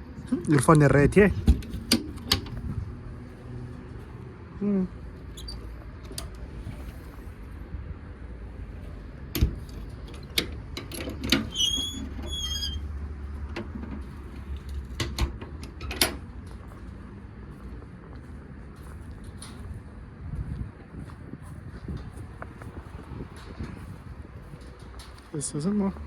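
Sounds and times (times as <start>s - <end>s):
low steady rumble: 0.0s - 24.8s
short high squeaks: 11.4s - 12.9s.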